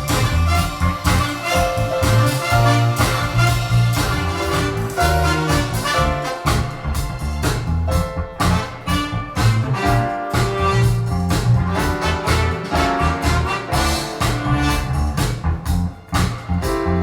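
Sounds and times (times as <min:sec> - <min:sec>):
bass-heavy music over loudspeakers: 0:00.0 - 0:17.0.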